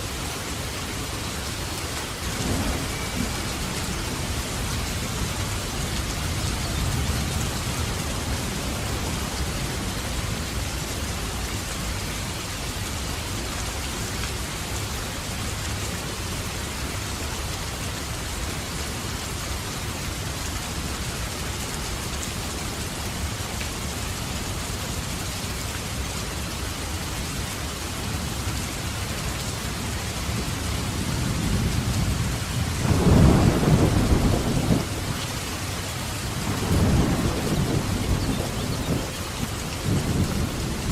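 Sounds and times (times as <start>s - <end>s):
heavy rain falling: 0.0s - 40.9s
low thunder rumble: 2.3s - 10.4s, 30.9s - 35.3s, 36.2s - 40.9s.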